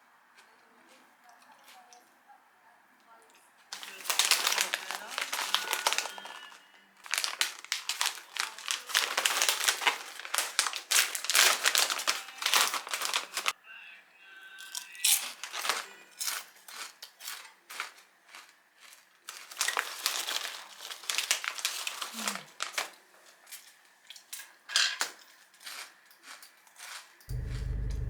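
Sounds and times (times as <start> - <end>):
plastic or paper crinkling: 3.7 - 13.5, 15.0 - 23.0.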